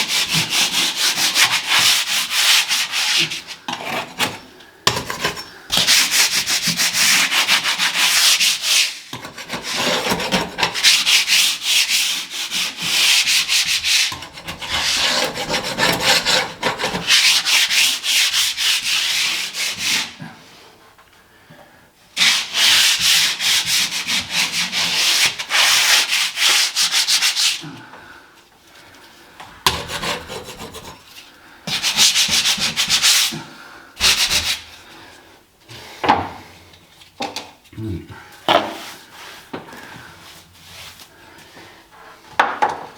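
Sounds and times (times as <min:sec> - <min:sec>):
sandpaper rubbing on ceiling: 0:00.0 - 0:04.4, 0:05.7 - 0:20.2, 0:22.2 - 0:27.7, 0:29.7 - 0:33.4, 0:34.0 - 0:34.8.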